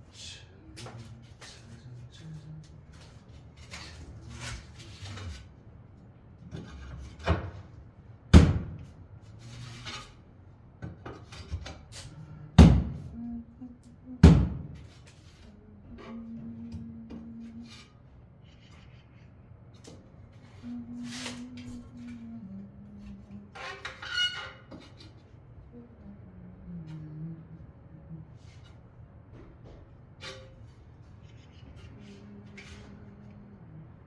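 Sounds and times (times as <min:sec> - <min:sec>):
clatter and scraping: 0:01.0 - 0:05.6.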